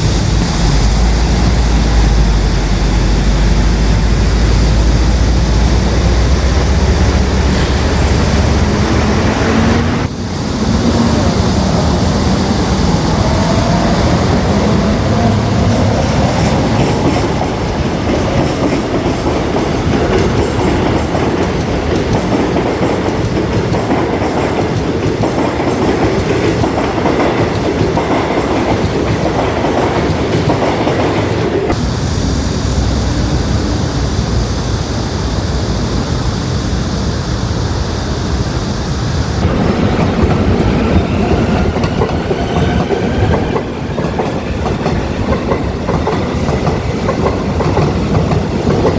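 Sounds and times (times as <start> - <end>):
train wheels clattering over rails: 10.8 - 31.8, 39.4 - 48.9.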